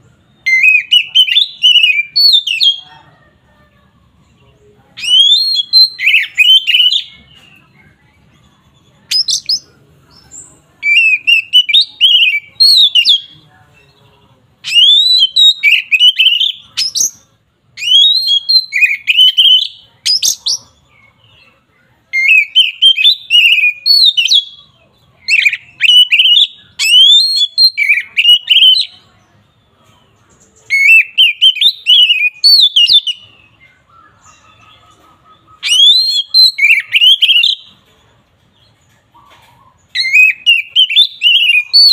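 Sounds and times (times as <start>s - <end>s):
bird singing whistled phrases: 0.2s - 2.9s, 5.0s - 7.7s, 9.1s - 9.7s, 10.8s - 13.4s, 14.6s - 20.8s, 22.1s - 29.1s, 30.6s - 37.7s, 39.8s - 41.9s.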